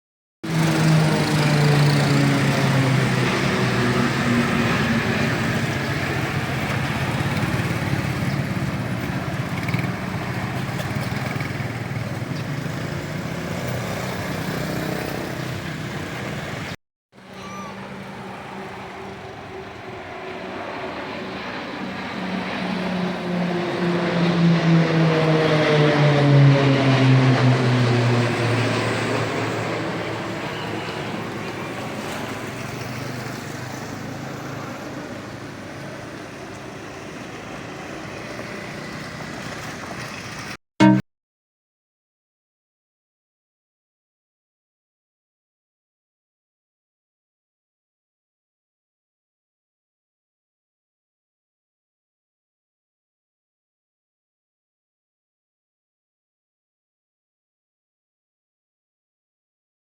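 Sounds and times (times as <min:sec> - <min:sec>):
diesel locomotive engine: 0:00.4 - 0:41.0.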